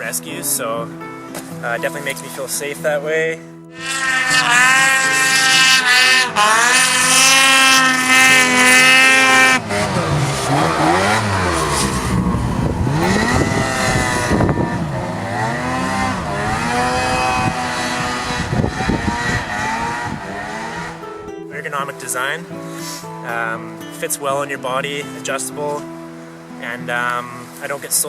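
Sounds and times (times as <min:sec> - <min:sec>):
snowmobile engine revving: 0:03.8 - 0:21.1.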